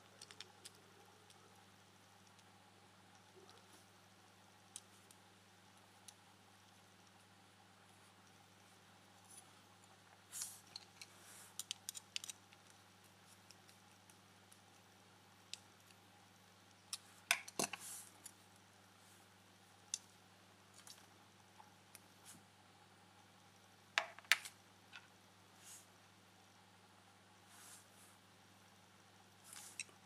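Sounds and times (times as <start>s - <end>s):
faint steady hum: 0.0s - 30.0s
small plastic parts clicking: 0.1s - 1.4s, 10.4s - 16.0s.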